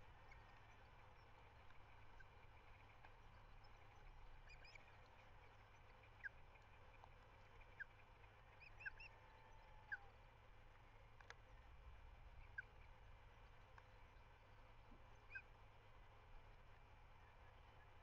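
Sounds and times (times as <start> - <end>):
faint high bird chirps: 0.0 - 10.2, 12.2 - 15.6.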